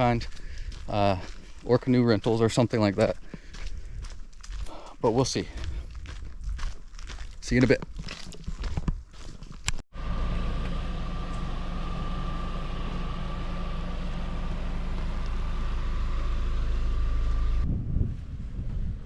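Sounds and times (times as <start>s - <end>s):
car engine and road rumble: 9.6s - 17.8s.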